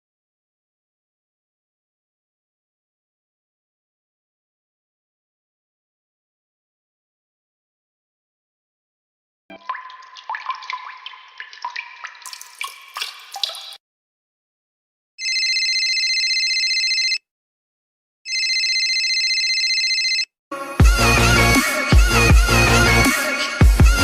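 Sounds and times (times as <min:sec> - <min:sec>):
water dripping: 0:09.5 - 0:13.8
telephone ringing: 0:15.2 - 0:17.2, 0:18.3 - 0:20.3.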